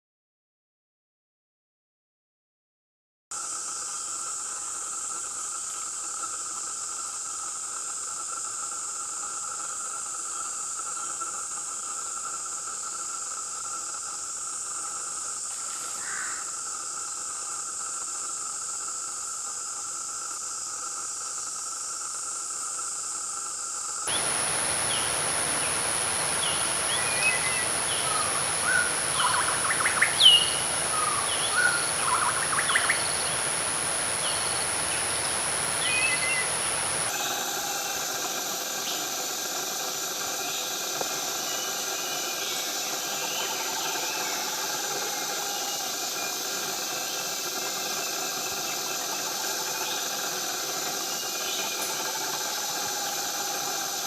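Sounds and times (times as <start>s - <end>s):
high insect whine: 3.3s - 54.0s
insect drone: 3.3s - 54.0s
birds chirping: 24.1s - 37.1s.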